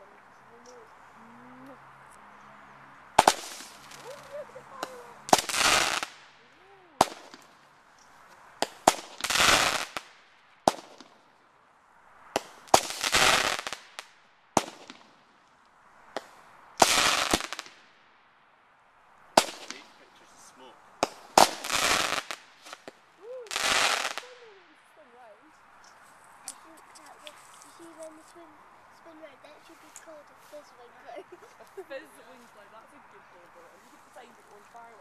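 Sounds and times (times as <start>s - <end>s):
fireworks crackling: 3.1s - 11.3s, 12.2s - 15.4s, 16.0s - 18.1s, 19.3s - 25.0s, 25.7s - 32.8s
fireworks banging: 3.2s - 6.4s, 7.0s - 7.7s, 8.6s - 11.2s, 12.3s - 15.3s, 16.1s - 17.9s, 19.3s - 24.5s.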